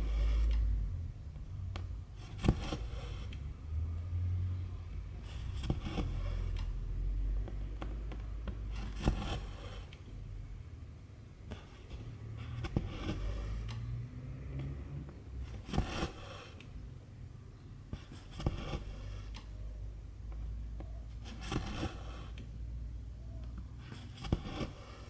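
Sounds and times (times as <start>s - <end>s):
thread scraping through fabric: 0.0s - 0.8s, 2.2s - 3.5s, 15.4s - 16.6s, 21.2s - 22.4s.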